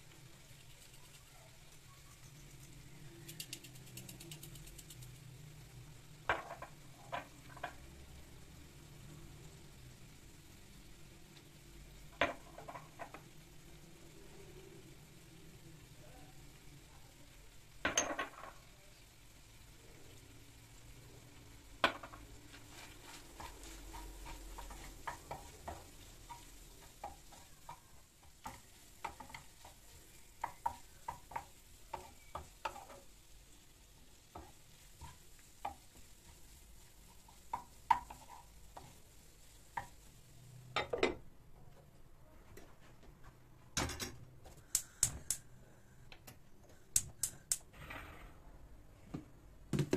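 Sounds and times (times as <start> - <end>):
small hard objects clicking: 2.2 - 5.3, 44.6 - 45.5, 46.9 - 47.7.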